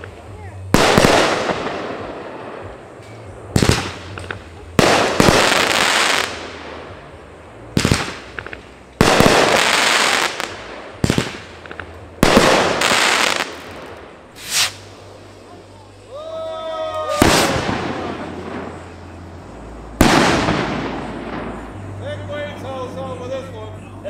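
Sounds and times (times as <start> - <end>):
fireworks bangs with rumble: 0.0 - 7.0, 7.7 - 14.9, 17.1 - 19.1, 19.9 - 22.3.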